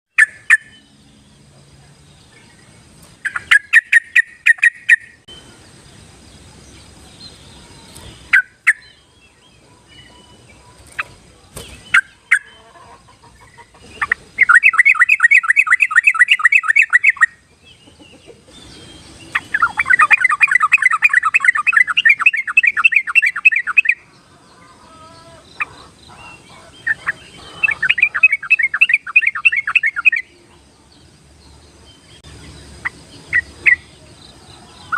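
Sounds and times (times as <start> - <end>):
bird bubbly chattering song: 3.2 - 5.4, 6.9 - 9.0, 13.3 - 24.0, 25.6 - 30.4.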